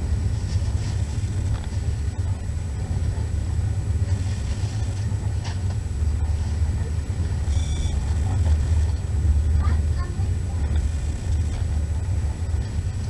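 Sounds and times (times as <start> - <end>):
train rumble from inside carriage: 0.0 - 13.0
high ringing tone: 7.5 - 8.0.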